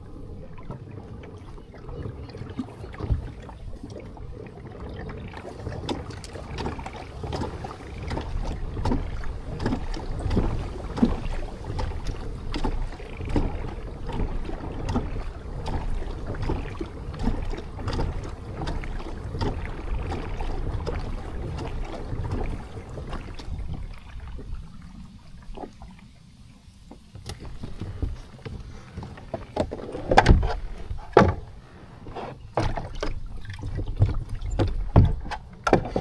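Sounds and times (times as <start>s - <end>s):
steady low rumble: 0.0s - 26.8s
paddle splashing in water: 0.0s - 36.0s.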